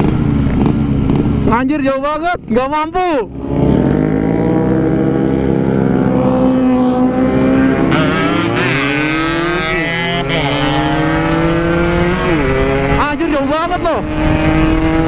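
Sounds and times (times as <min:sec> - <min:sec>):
motorcycle engine revving high: 0:03.2 - 0:15.0.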